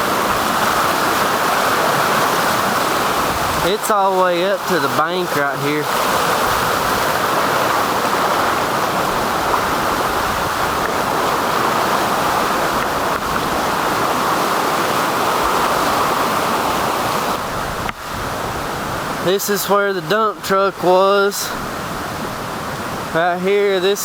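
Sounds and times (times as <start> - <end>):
rushing creek water roar: 0.0 - 24.0.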